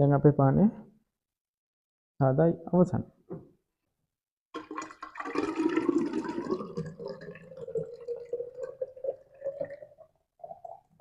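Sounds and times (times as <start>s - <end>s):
thick drink being poured: 4.6s - 11.0s.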